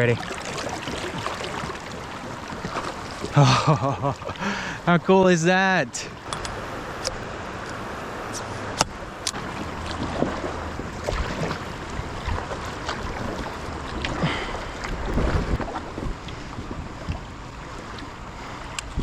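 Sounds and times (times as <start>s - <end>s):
river water rushing: 0.0s - 19.0s
wind on microphone: 6.0s - 19.0s
sharp clicks: 6.3s - 7.8s.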